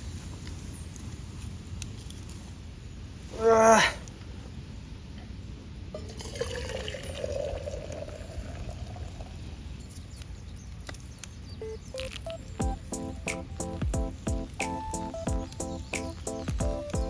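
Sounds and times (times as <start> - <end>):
water pouring into container: 6.0 - 9.4.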